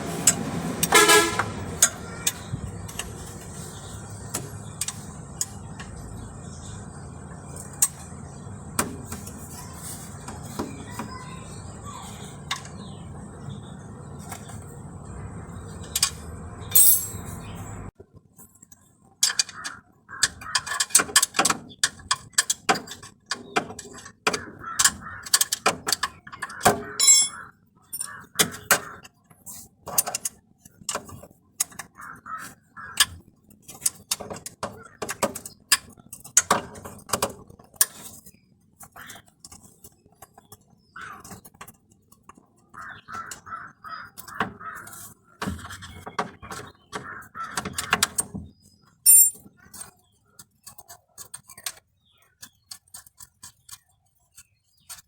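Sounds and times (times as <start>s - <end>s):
metal clinks and knocks: 15.8s - 17.6s, 26.9s - 28.1s, 49.0s - 49.5s.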